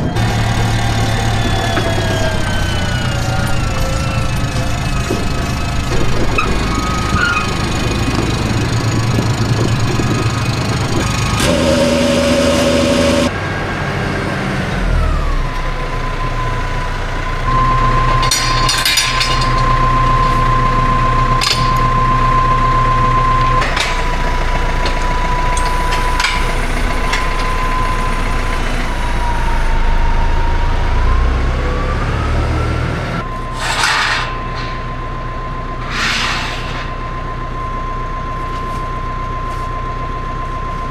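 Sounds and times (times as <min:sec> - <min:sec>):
high whine: 0:00.0 - 0:13.4, 0:15.2 - 0:31.1, 0:33.2 - 0:40.9
machine engine running: 0:00.0 - 0:36.0
hissing bursts: 0:33.4 - 0:34.4, 0:35.8 - 0:37.0.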